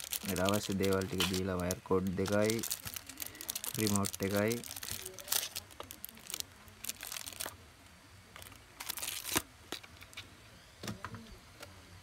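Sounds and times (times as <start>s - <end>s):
plastic packaging crinkling: 0.0s - 7.6s, 8.3s - 10.3s.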